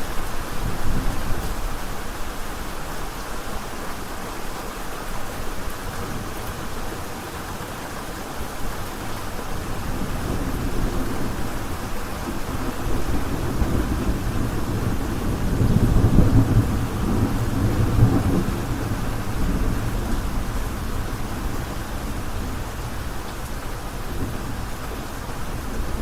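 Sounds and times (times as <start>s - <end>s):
heavy rain: 0.0s - 26.0s
low roll of thunder: 9.6s - 23.2s, 23.8s - 26.0s.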